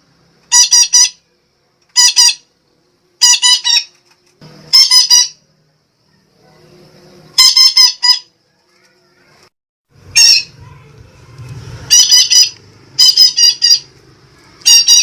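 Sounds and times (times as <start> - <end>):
parakeet squawking: 0.5 - 1.2, 2.0 - 2.5, 3.2 - 3.9, 4.7 - 5.4, 7.4 - 8.4, 10.0 - 10.9, 11.8 - 15.0.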